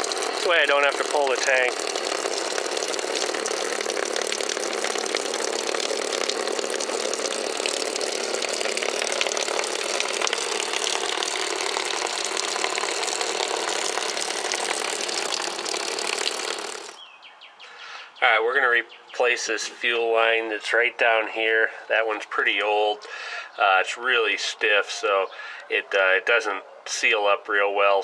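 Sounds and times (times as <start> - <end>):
electric fuel pump buzzing: 0.0 - 17.0.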